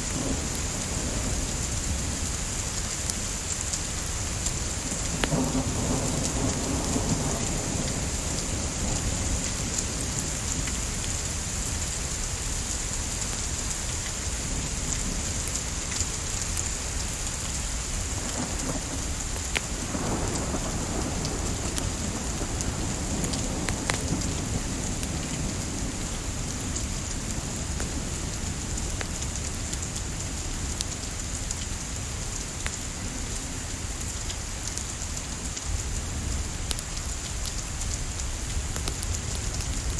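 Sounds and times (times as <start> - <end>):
low rumble of thunder: 0.0 - 12.8, 14.4 - 39.9
steady rain hissing: 0.0 - 39.9.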